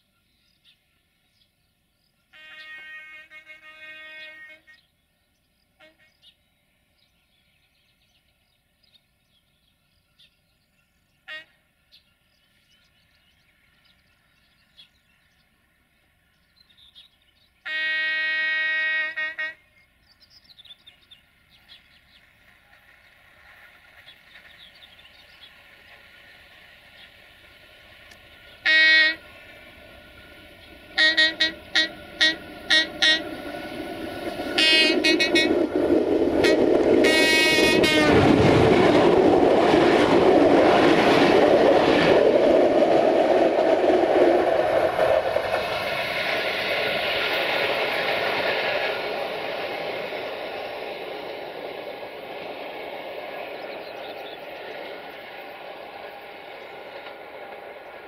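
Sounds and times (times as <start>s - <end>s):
locomotive horn blasts and toots: 2.3s - 4.8s, 17.6s - 19.6s, 28.6s - 29.2s, 31.0s - 33.3s, 34.6s - 35.6s, 36.4s - 38.2s
locomotive engine rumbling: 21.0s - 58.0s.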